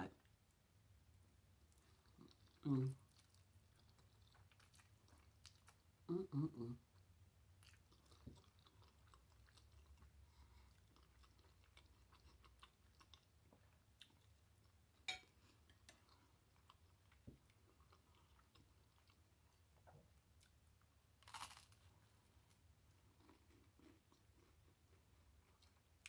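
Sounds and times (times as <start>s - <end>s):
person chewing: 1.6s - 5.9s, 7.0s - 19.7s, 21.2s - 26.0s
bread crunch: 21.2s - 22.6s.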